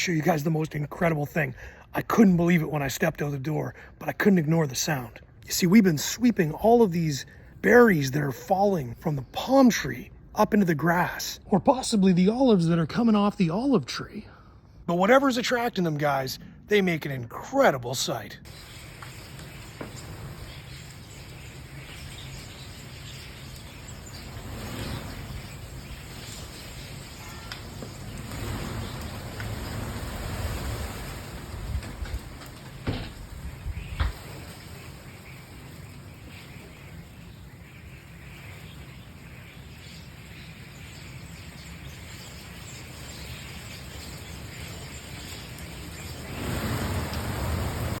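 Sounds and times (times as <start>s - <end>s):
flock of birds chirping: 17.6s - 48.0s.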